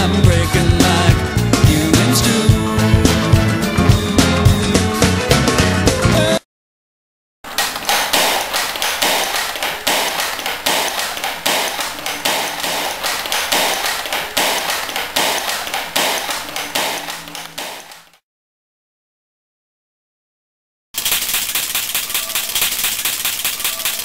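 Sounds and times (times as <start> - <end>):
sharp taps: 7.5 - 18.2.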